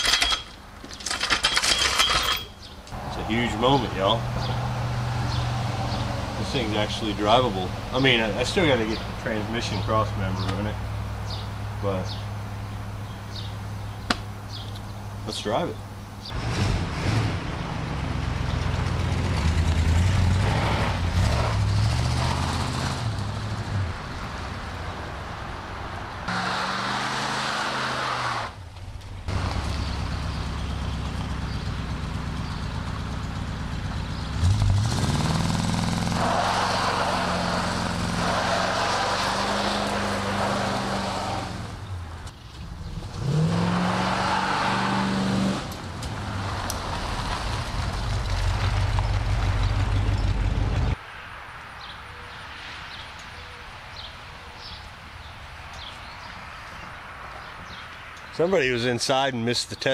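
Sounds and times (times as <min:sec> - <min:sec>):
engine under hard acceleration: 0:02.9 - 0:07.6, 0:16.3 - 0:24.0, 0:26.3 - 0:42.0, 0:42.8 - 0:51.0.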